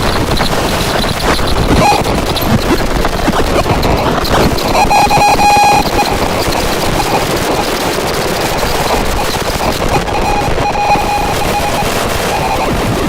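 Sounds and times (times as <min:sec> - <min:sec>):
crackling hissing synthesizer noise: 0:00.0 - 0:13.0
thin high synth tones: 0:04.5 - 0:13.0.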